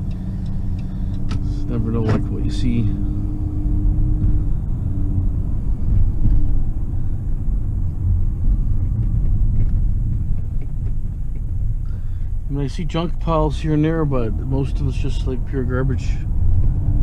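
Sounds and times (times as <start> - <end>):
engine and road rumble: 0.0 - 17.0.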